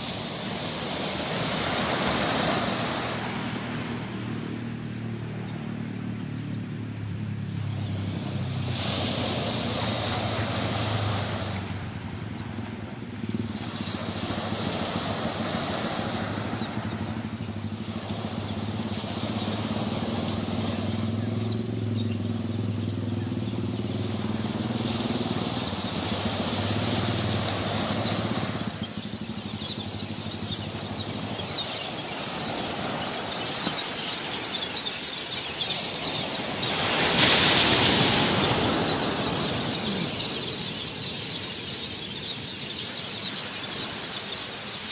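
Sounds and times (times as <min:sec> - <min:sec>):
engine running steadily: 0:00.0 - 0:44.8
rushing wind or surf: 0:00.0 - 0:44.9.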